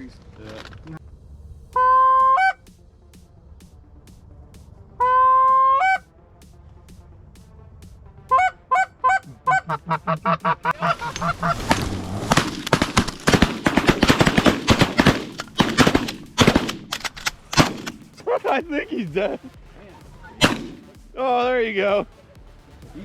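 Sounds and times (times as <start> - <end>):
geese honking: 1.7 - 2.6, 5.0 - 6.1, 8.2 - 16.5
goose calls clucking: 1.8 - 2.6, 5.0 - 6.0, 8.3 - 11.9.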